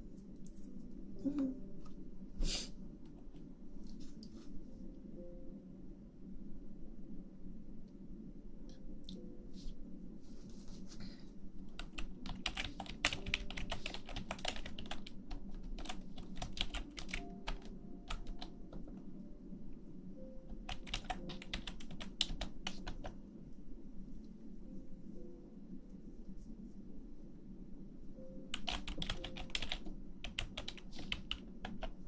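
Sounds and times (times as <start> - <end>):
steady low hum: 0.0 - 32.0
computer keyboard typing: 11.7 - 19.0, 20.5 - 23.2, 28.5 - 32.0.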